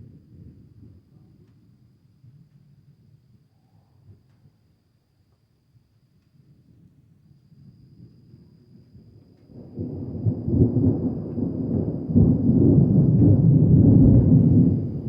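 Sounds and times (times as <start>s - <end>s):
deep thunder rumbling: 9.5s - 15.0s.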